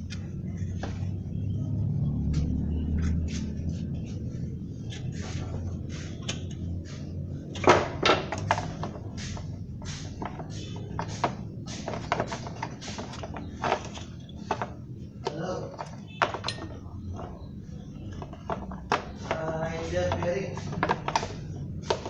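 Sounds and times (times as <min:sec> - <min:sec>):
irregular clicks and knocks: 0:04.9 - 0:22.0.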